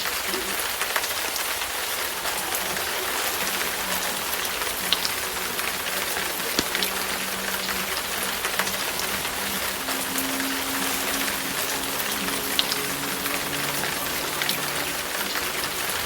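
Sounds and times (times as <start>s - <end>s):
wood fire crackling: 0.8s - 14.8s
fire popping: 2.1s - 7.9s.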